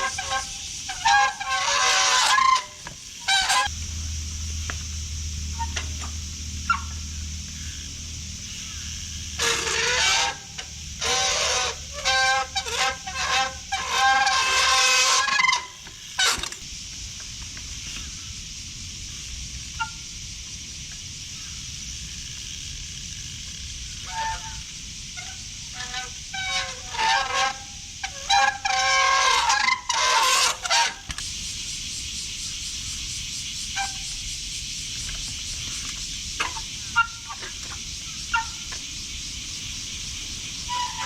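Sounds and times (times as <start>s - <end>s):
bike rim brakes squealing: 0.0s - 3.8s, 5.5s - 16.6s, 19.8s - 20.0s, 23.9s - 31.2s, 33.7s - 34.2s, 35.3s - 38.9s, 40.5s - 41.0s
steady hiss: 0.0s - 41.0s.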